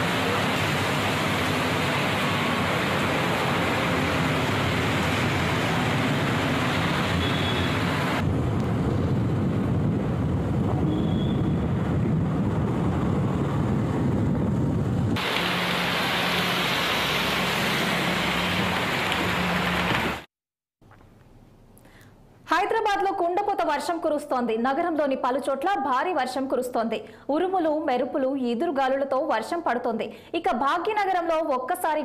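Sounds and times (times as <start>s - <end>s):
heavy rain on wet roads: 0.0s - 8.3s, 15.2s - 20.3s.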